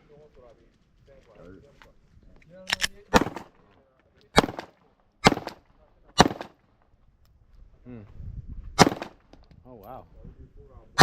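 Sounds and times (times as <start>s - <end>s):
gunshots: 2.7s - 3.6s, 4.3s - 6.6s, 8.8s - 9.3s.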